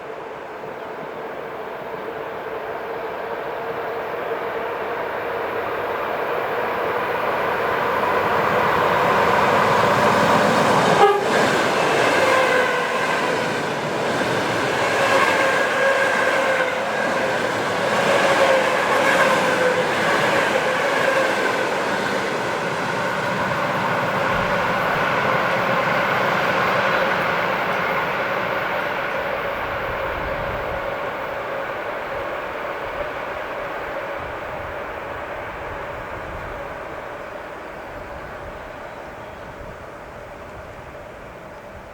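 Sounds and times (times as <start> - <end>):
train wheels rushing past: 5.5 - 37.3.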